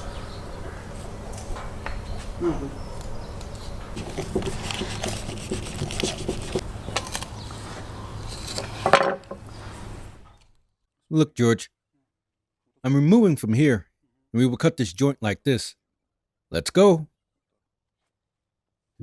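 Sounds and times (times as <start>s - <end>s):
knife blades scraping: 8.2s - 8.9s.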